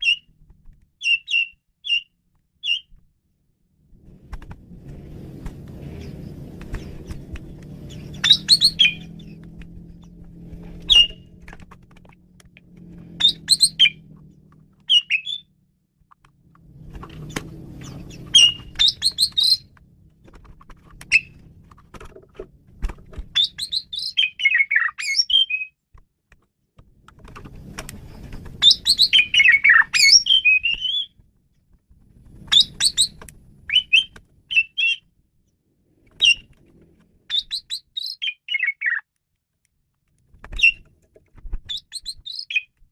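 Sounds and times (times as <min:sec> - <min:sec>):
starling singing: 0:07.8 - 0:09.4, 0:13.1 - 0:14.1, 0:14.8 - 0:15.5, 0:17.2 - 0:19.7, 0:21.1 - 0:21.5, 0:23.4 - 0:25.7, 0:28.6 - 0:31.1, 0:32.5 - 0:35.0, 0:37.3 - 0:39.0.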